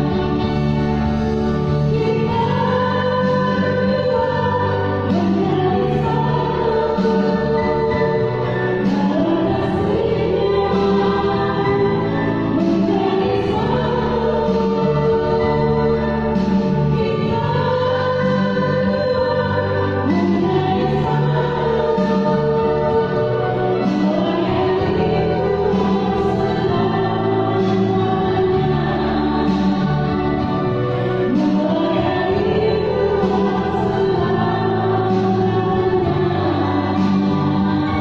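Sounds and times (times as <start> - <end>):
choir singing in parts: 0.0 - 38.0.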